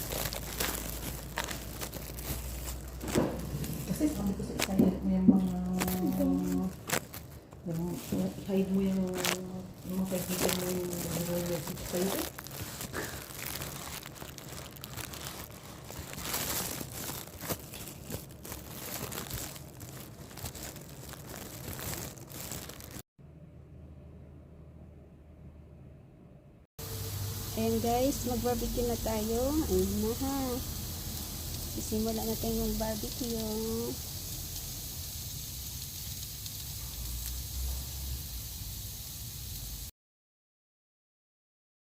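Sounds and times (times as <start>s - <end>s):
plastic crinkling and crackling: 0.0s - 23.0s, 27.8s - 37.8s
low rumble: 0.1s - 6.8s
low hum: 23.2s - 33.2s
chicken sizzling on a grill: 26.8s - 39.9s.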